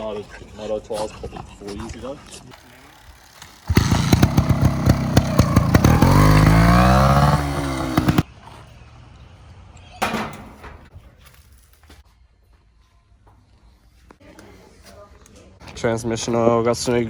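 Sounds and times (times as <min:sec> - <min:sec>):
two-stroke motorbike engine revving: 0:02.5 - 0:08.3.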